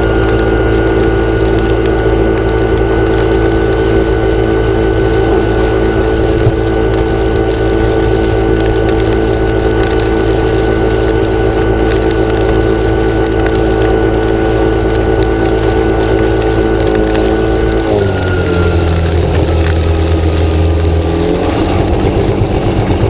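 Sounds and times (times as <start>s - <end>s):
machine motor humming: 0.0s - 23.0s.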